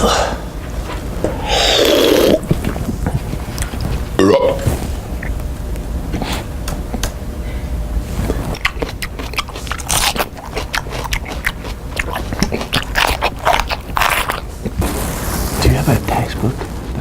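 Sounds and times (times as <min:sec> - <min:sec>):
person chewing crunchy snack: 0:01.4 - 0:05.5, 0:08.1 - 0:15.2.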